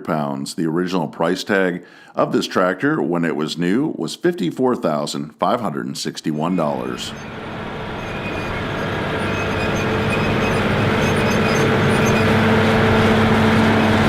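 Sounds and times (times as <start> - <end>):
tractor diesel engine under load: 6.7 - 14.0.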